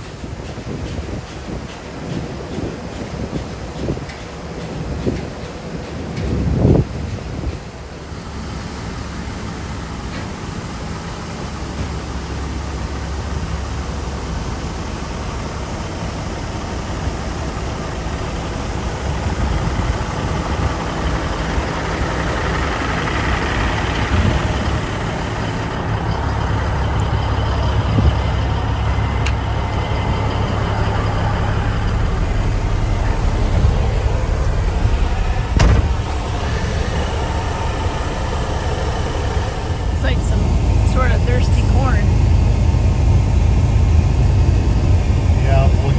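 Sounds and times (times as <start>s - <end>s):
road noise: 0.0s - 45.9s
truck engine droning: 6.0s - 45.9s
knocks and jolts: 32.3s - 39.8s.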